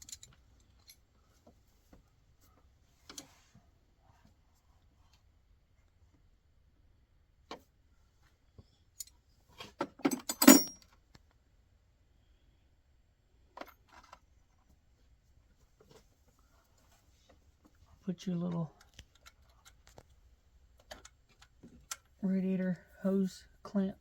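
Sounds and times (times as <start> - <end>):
metal tools clinking: 0.0 - 1.0, 10.0 - 10.8
metallic ring: 10.1 - 10.8.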